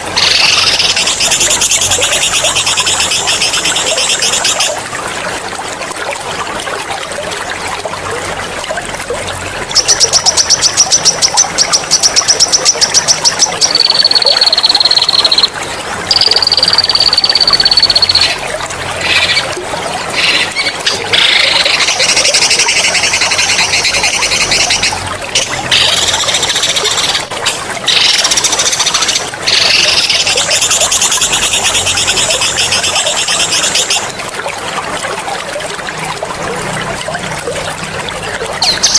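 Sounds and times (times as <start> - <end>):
water trickling: 0.0 - 38.9
songbird singing trills and whistles: 9.8 - 15.5.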